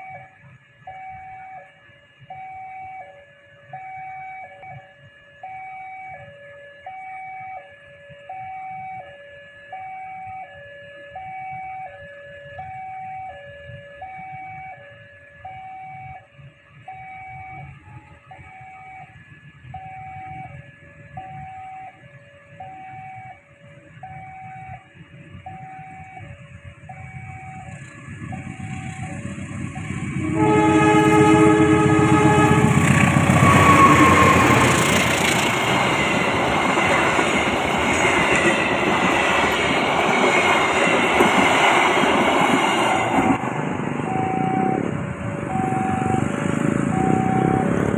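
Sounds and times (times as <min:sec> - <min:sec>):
train rumble passing: 0:20.4 - 0:47.9
train horn: 0:29.8 - 0:37.3
level crossing alarm two-tone: 0:44.0 - 0:46.3, 0:46.9 - 0:47.9.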